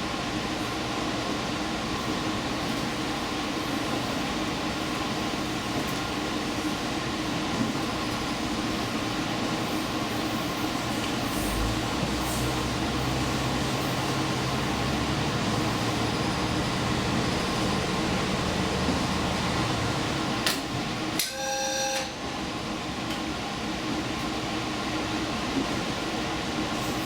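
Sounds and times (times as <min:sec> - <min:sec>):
train wheels and motor rumble: 0:00.0 - 0:21.3, 0:22.3 - 0:27.0
short two-tone signal: 0:21.2 - 0:22.2.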